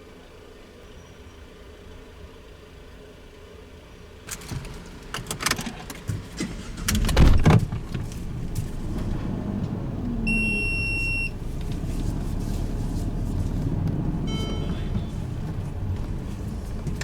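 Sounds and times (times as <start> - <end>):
low engine hum: 4.2 - 17.0
electronic beep: 10.3 - 11.3, 14.2 - 15.1.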